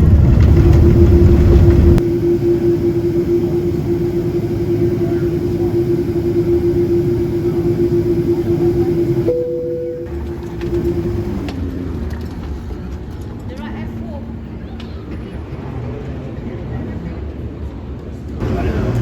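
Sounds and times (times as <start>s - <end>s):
loud low rumble: 0.0s - 11.5s
steady drone with held tone: 0.0s - 11.6s
vehicle interior running noise: 0.0s - 13.4s.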